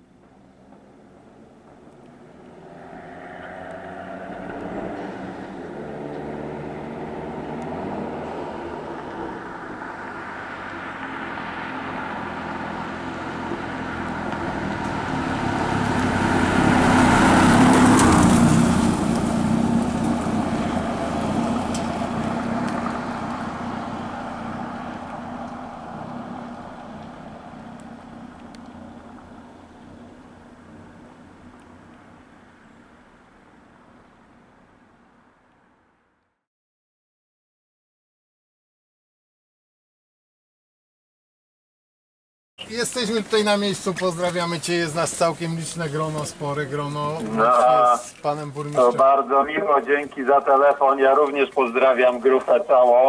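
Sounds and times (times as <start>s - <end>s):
rally car engine passing by: 2.1s - 32.6s.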